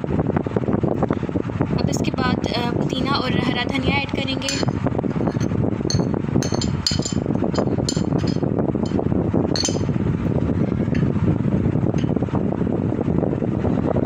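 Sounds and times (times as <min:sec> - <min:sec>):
low background rumble: 0:00.0 - 0:14.0
spoon clinking against bowl: 0:04.5 - 0:04.7, 0:05.3 - 0:09.0, 0:09.6 - 0:09.9.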